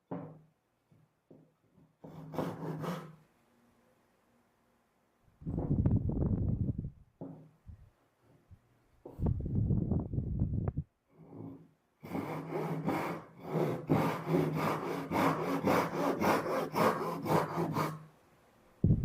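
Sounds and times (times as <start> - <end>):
hand saw cutting wood: 2.0 - 3.2, 11.1 - 18.1.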